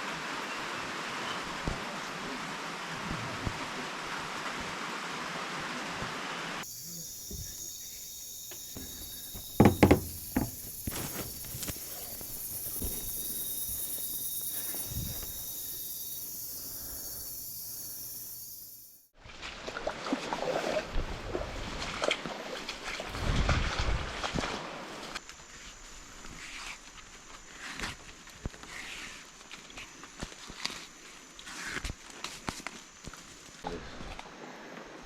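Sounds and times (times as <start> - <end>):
high insect chorus: 6.6 - 19.1
sharp knocks: 8.5 - 11.3.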